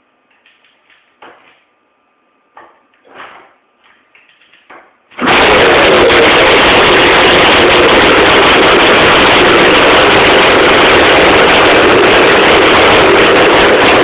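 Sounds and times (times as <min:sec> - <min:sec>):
dirt bike engine running: 0:05.2 - 0:14.0.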